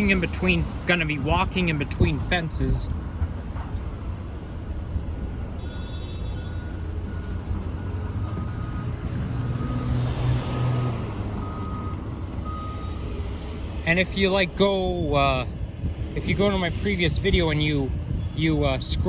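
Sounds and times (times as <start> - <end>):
vehicle passing: 0.0 - 15.0
road traffic rumble: 0.0 - 19.0
reversing alarm beeping: 5.6 - 13.2.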